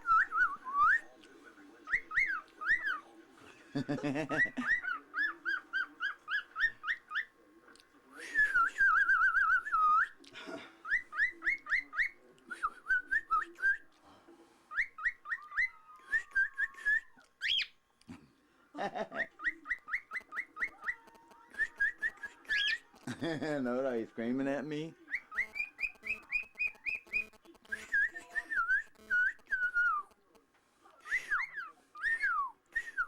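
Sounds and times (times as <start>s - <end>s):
sharp high-pitched bird calls: 4.3s - 7.4s, 17.4s - 17.8s, 19.2s - 22.9s, 25.1s - 30.3s
bird whistled chirps: 14.7s - 17.8s, 19.2s - 22.8s, 25.1s - 30.2s, 31.1s - 33.0s
bird warbling trill: 25.1s - 30.1s.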